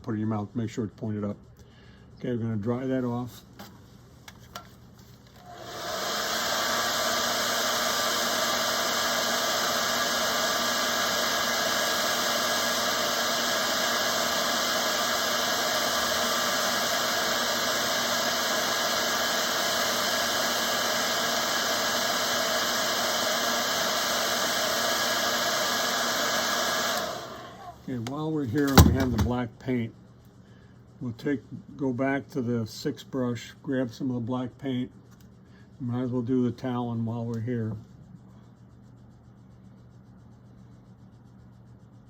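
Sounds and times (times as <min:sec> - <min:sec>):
hair dryer running: 0:05.4 - 0:27.8, 0:28.6 - 0:29.3.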